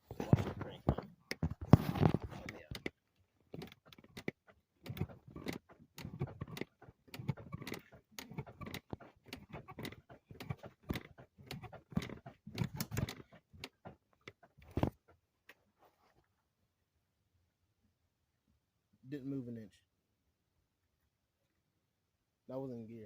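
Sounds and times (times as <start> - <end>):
car clunking and rattling: 0.2 - 2.9, 3.5 - 15.1.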